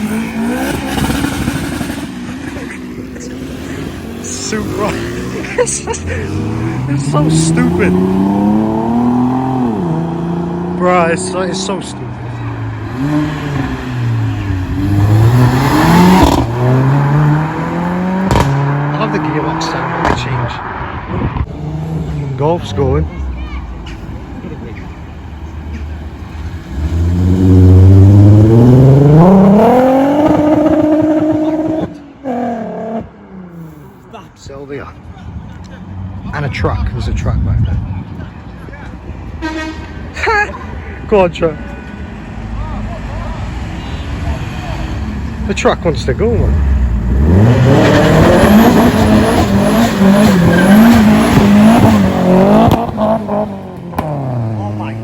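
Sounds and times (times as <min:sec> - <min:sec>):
car engine accelerating hard: 0:00.0 - 0:23.0, 0:26.5 - 0:33.8, 0:44.3 - 0:55.0.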